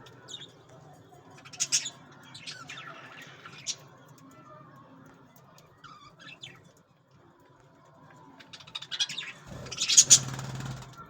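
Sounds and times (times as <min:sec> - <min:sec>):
budgerigars chirping: 0:09.0 - 0:11.0.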